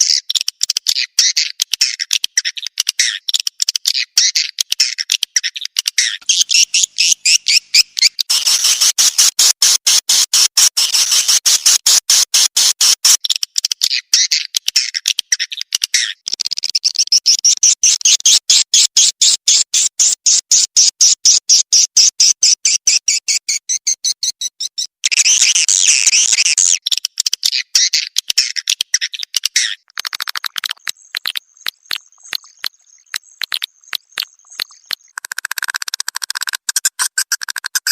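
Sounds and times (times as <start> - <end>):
high dry swiftlet chirps: 6.2 - 13.3, 30.0 - 37.9.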